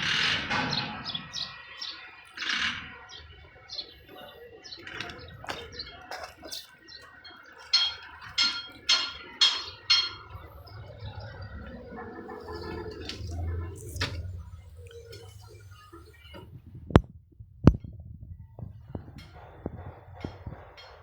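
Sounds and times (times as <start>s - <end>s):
sharp ringing knocks: 7.6s - 10.9s.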